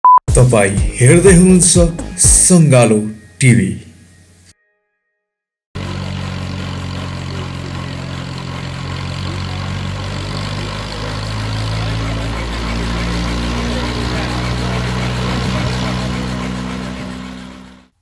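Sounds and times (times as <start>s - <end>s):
helicopter engine running: 0.5s - 2.6s, 5.8s - 18.0s.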